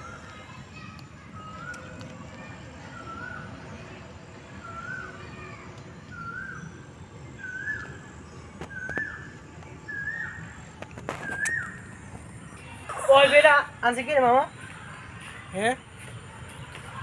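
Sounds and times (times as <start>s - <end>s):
outdoor rustle: 0.0s - 17.0s
bird calling rising falling note: 11.1s - 11.9s.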